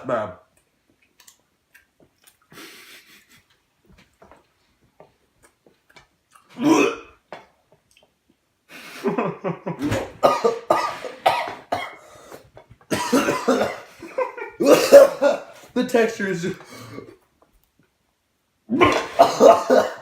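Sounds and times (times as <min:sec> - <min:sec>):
person coughing: 0:06.6 - 0:07.2, 0:09.8 - 0:12.0, 0:12.9 - 0:14.0, 0:14.6 - 0:15.6, 0:18.7 - 0:20.0.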